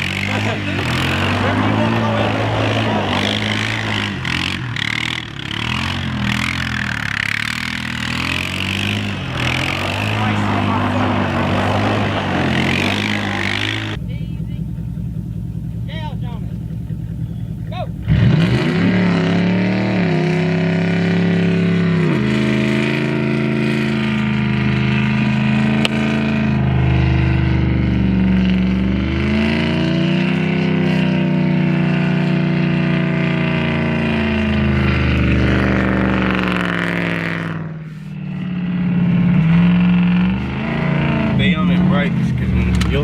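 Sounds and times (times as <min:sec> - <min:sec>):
vehicle engine running under load: 0:00.0 - 0:43.0.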